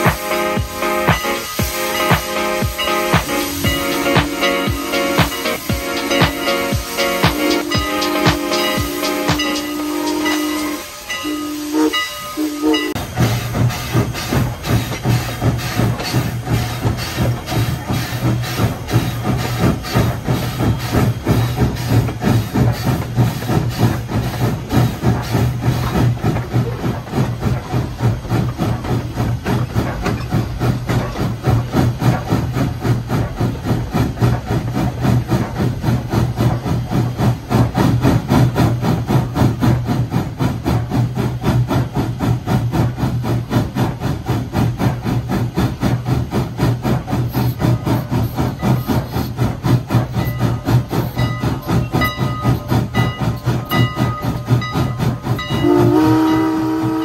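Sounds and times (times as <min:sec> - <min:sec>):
steam whistle blast: 0:00.0 - 0:13.5, 0:55.6 - 0:57.0
steam train chugging: 0:00.0 - 0:57.0.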